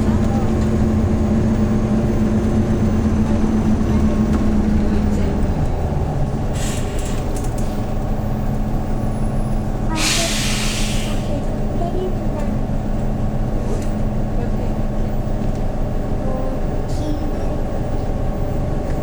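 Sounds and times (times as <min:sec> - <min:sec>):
bus engine running: 0:00.0 - 0:19.0
brief hissing: 0:06.6 - 0:07.2, 0:10.0 - 0:11.3.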